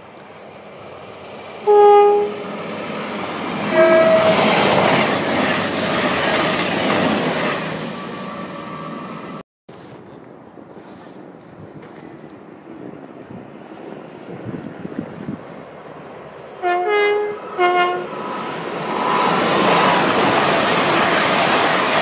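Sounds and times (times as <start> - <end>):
train rushing past: 0.0 - 9.4, 11.7 - 22.0
train horn blasts: 1.6 - 2.6, 3.6 - 5.0, 16.6 - 18.2.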